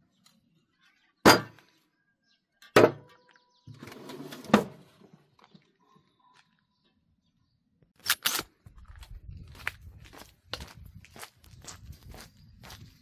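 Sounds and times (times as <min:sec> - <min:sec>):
sharp knocks: 0:02.8 - 0:03.1.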